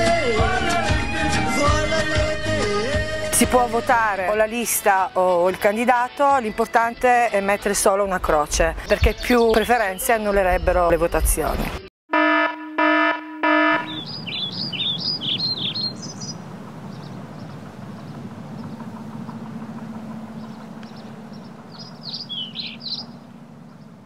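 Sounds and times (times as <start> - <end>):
small birds chirping: 8.8 - 10.7, 13.8 - 24.0
short electronic beeps: 12.1 - 14.0
steady low hum: 16.4 - 22.3.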